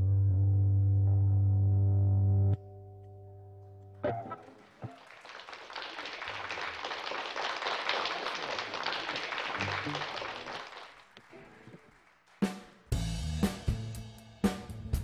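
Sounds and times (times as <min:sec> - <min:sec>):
audience applauding: 0:04.1 - 0:12.9.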